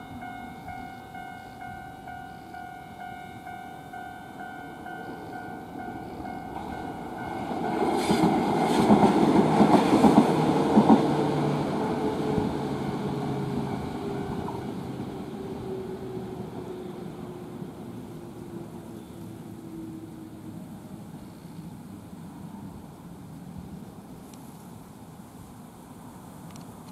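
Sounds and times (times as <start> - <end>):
level crossing alarm ringing: 0.0 - 8.0
train wheels clacking over rail joints: 6.5 - 11.2.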